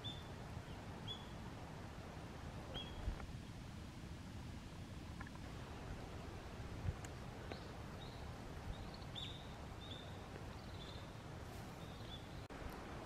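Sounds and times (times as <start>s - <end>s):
small bird calling: 2.7s - 3.2s.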